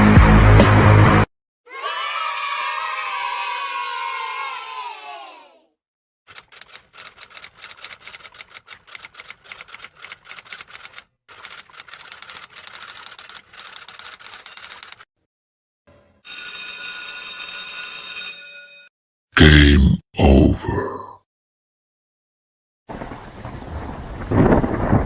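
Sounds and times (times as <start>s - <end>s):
rapid tapping clicks: 6.3s - 15.0s.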